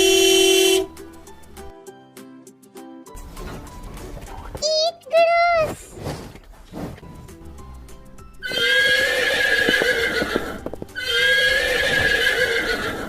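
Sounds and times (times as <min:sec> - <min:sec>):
horse whinnying: 0:08.4 - 0:13.0
horse hooves clip-clopping: 0:08.5 - 0:12.4.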